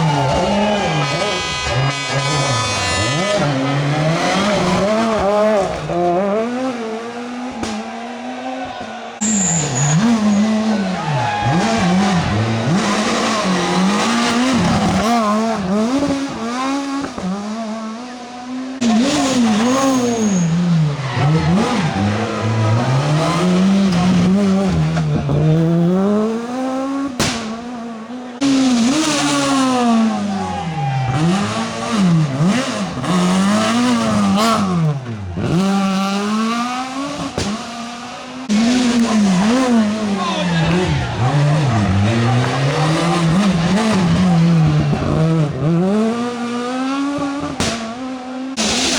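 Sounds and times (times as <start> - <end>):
rally car engines revving: 0.0 - 48.9
tyre squeal: 9.2 - 15.0, 19.2 - 23.0.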